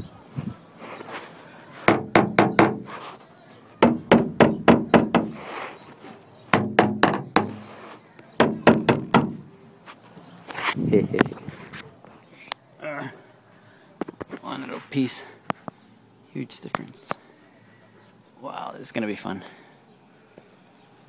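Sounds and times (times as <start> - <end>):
knocking on sheet-metal panels: 1.9 - 2.9, 3.8 - 5.4, 6.5 - 7.7, 8.4 - 9.5.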